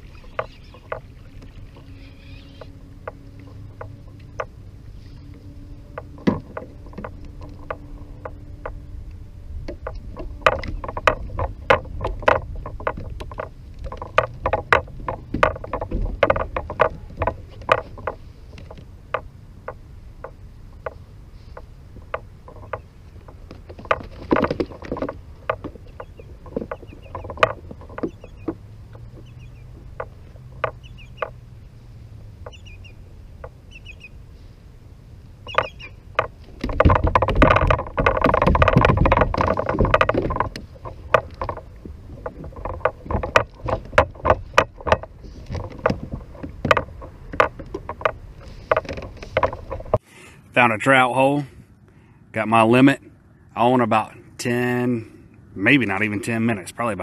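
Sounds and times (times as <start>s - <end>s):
faint bird chirps: 0.0s - 2.8s, 30.8s - 31.3s, 32.5s - 33.0s, 33.7s - 34.2s, 35.4s - 36.0s
fishing gear clicking and knocking: 0.0s - 50.0s
wind and water rumble: 0.0s - 57.0s.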